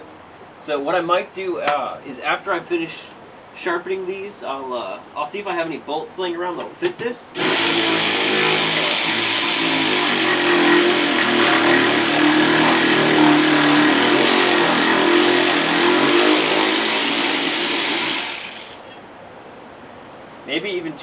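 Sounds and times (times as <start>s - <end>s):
motor running loudly: 7.4s - 19.0s.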